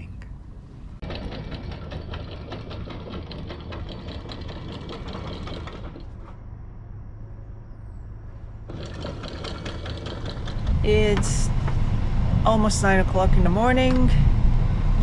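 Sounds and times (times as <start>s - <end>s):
small boat engine clattering: 1.0s - 6.4s, 8.6s - 14.2s.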